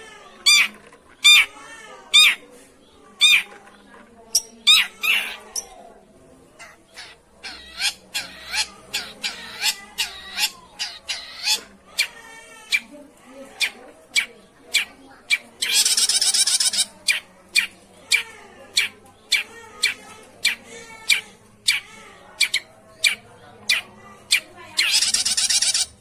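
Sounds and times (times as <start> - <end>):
bird giving harsh nasal calls: 4.7 - 5.4, 15.6 - 16.9, 24.8 - 25.9.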